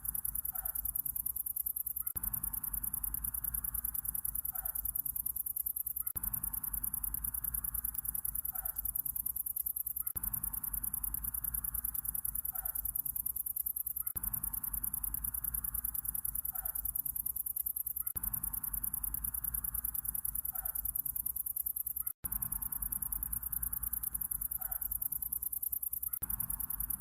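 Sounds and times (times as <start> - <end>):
insect trill: 0.0 - 27.0.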